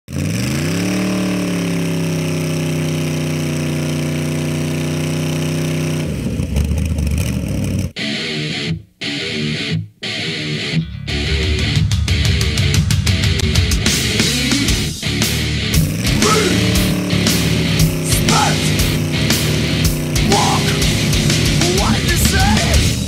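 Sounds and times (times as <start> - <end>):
motorcycle engine revving: 0.1 - 8.0, 11.6 - 23.0
heavy rock music with guitar: 7.9 - 23.0.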